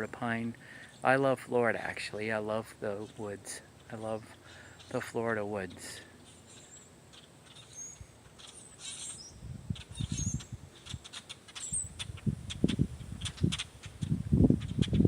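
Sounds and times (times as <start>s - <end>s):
high bird chirps: 6.2s - 12.2s.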